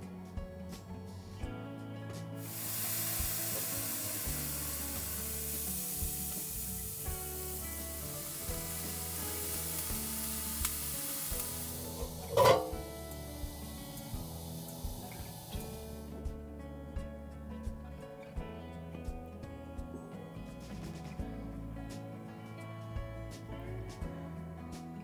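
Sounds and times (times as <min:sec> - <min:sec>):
food sizzling in a hot pan: 0:02.4 - 0:16.2.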